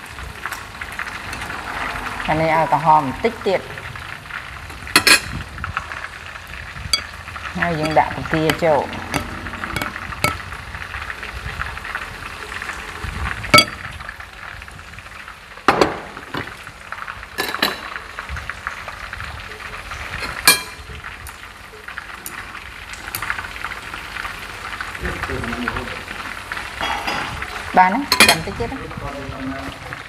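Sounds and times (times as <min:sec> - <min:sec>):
shrimp deep-frying in oil: 0:00.0 - 0:30.0
metal tongs clinking on pan: 0:05.0 - 0:05.3, 0:06.9 - 0:10.4, 0:13.6 - 0:13.8, 0:20.4 - 0:20.8, 0:28.1 - 0:28.6.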